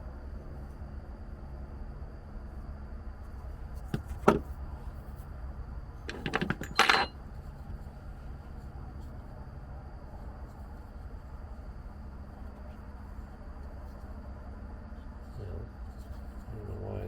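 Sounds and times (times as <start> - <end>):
steady low hum: 0.0 - 17.0
small hard parts clinking: 6.0 - 7.2.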